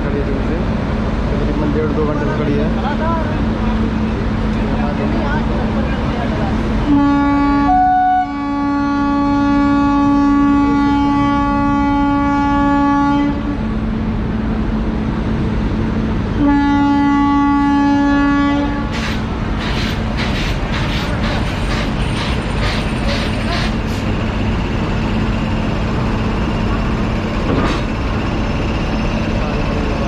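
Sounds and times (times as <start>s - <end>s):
locomotive air horn: 6.9s - 13.6s, 16.4s - 18.9s
train wheels clattering: 18.9s - 24.1s.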